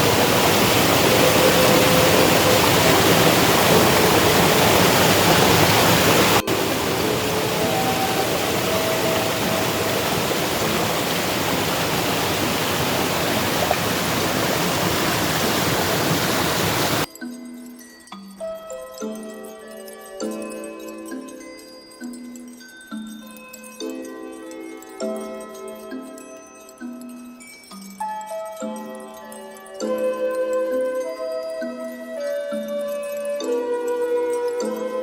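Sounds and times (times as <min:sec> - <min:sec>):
waterfall rushing: 0:00.0 - 0:17.1
music: 0:01.0 - 0:04.5, 0:06.4 - 0:11.4, 0:17.0 - 0:35.0.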